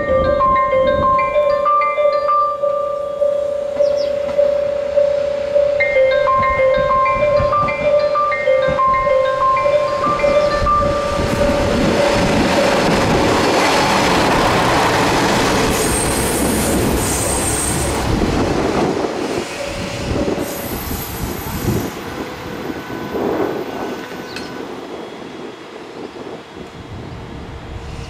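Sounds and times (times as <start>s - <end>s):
freight train rumbling: 0.0s - 28.0s
train wheels squealing: 15.7s - 18.0s, 19.3s - 21.9s.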